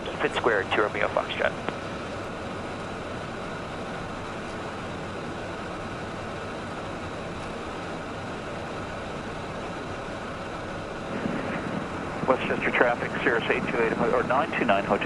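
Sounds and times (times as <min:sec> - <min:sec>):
jet cockpit rushing noise: 0:11.0 - 0:15.0.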